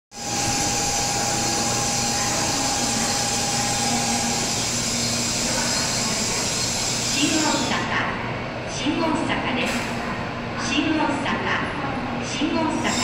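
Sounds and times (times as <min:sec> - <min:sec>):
train equipment whirring hiss: 0:00.1 - 0:07.9.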